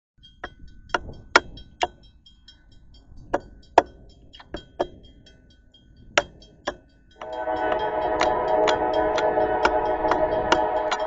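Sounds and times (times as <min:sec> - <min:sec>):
faint steady ringing tone: 0:05.0 - 0:11.0.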